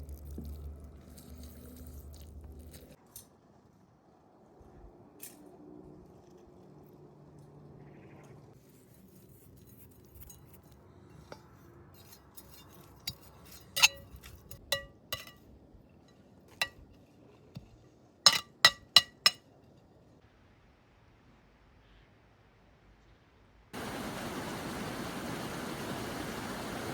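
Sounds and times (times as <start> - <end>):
kitchenware clinking: 11.4 - 15.5, 16.5 - 16.9, 18.3 - 19.5.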